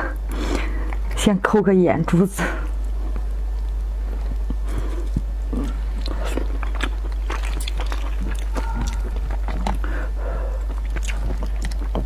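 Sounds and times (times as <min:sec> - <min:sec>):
steady low hum: 0:00.0 - 0:12.0
wet chewing and biting: 0:02.8 - 0:12.0.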